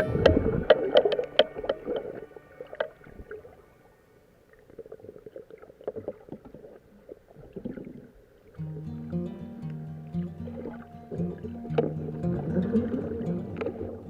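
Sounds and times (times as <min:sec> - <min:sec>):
faint clicks: 0:00.0 - 0:03.2
plucked-string music: 0:00.0 - 0:03.9, 0:08.5 - 0:14.0.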